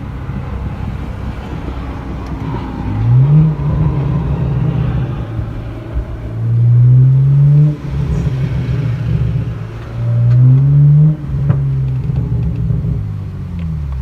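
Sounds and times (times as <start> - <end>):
car exhaust accelerating: 0.0 - 14.0
exhaust backfire pop: 3.4 - 14.0.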